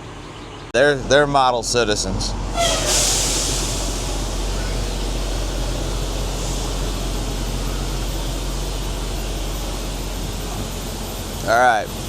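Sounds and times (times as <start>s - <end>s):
vehicle low hum: 0.0s - 12.0s
even hiss: 2.6s - 7.2s.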